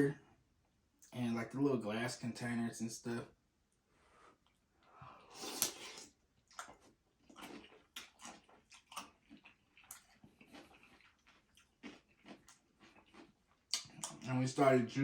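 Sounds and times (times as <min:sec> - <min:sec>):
person chewing: 0:04.4 - 0:14.3.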